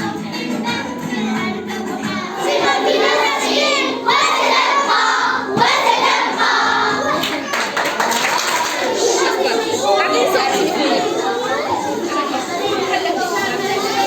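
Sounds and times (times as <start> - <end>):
children singing and shouting: 0.0 - 14.0
music: 0.0 - 14.0.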